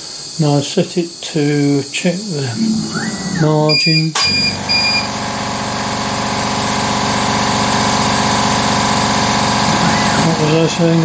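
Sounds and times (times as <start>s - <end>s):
air compressor running: 2.3s - 11.0s
short electronic beeps: 2.6s - 5.1s.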